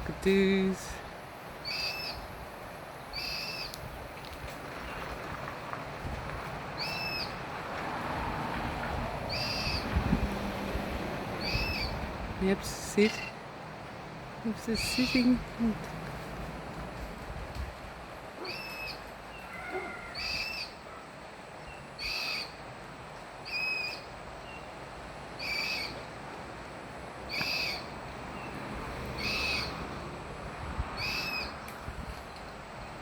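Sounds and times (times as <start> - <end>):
cockatoo harsh calls: 18.4 - 20.8, 29.2 - 29.8.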